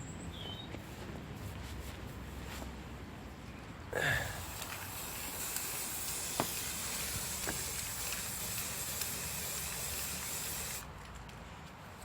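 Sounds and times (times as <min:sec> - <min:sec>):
spray can hissing: 0:04.2 - 0:10.9.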